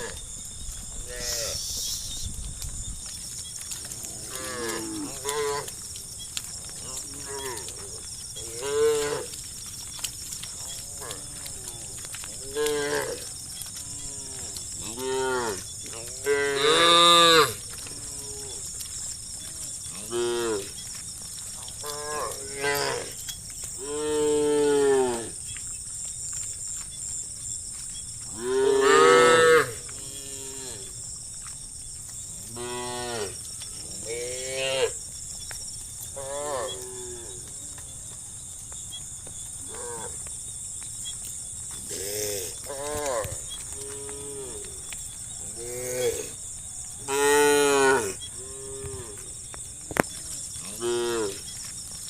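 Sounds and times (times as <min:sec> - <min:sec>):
steady high hiss: 0:01.0 - 0:02.4.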